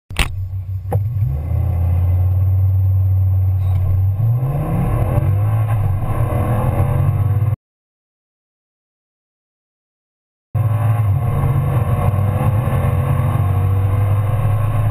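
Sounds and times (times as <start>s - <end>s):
sharp click: 0.1s - 1.0s
car engine accelerating hard: 0.4s - 7.6s, 10.6s - 14.9s.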